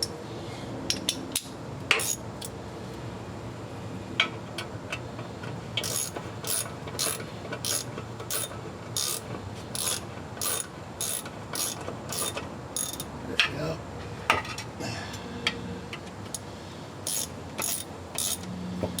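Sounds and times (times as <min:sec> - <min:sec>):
socket ratchet clicking: 0:05.8 - 0:09.2, 0:09.8 - 0:13.1, 0:16.3 - 0:18.4.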